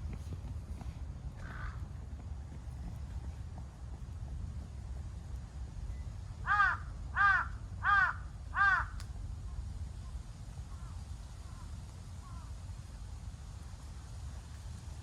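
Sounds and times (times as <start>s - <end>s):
crow cawing: 1.4s - 1.8s, 6.4s - 9.0s.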